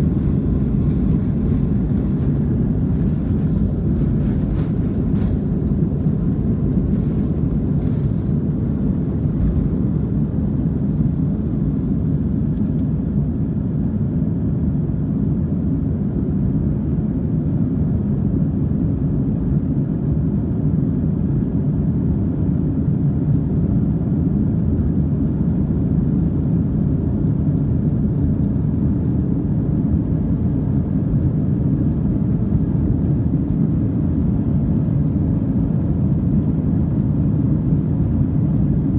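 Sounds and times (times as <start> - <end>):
jet engine cabin drone: 0.0 - 17.9.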